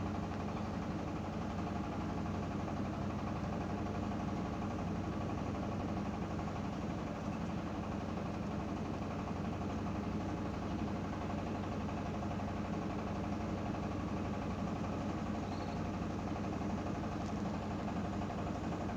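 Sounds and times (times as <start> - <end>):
faint short chirp: 15.4 - 15.8.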